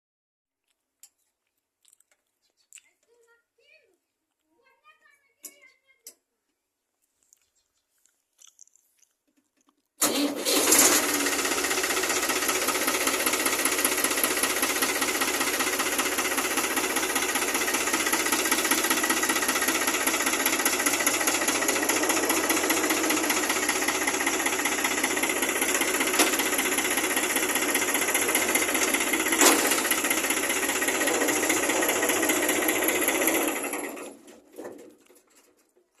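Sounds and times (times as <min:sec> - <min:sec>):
tractor diesel engine running: 0:10.0 - 0:34.5.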